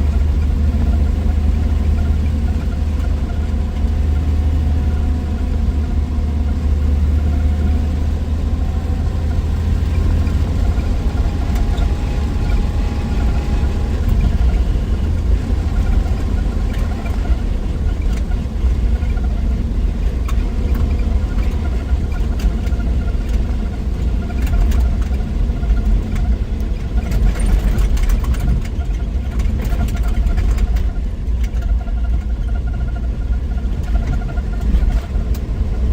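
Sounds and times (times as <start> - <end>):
car engine running: 0.0 - 35.9
road noise: 0.0 - 35.9
faint light clicks or rattles: 24.3 - 32.6.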